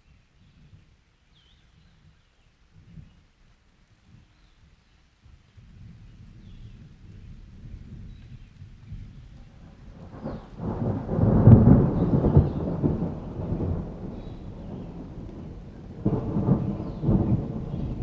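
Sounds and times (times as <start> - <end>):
steady rain: 0.3 - 18.0
thunder rumbling: 9.0 - 18.0.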